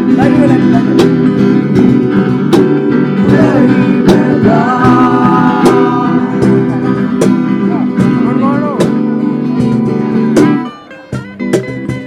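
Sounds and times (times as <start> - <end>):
guitar: 0.0 - 12.0.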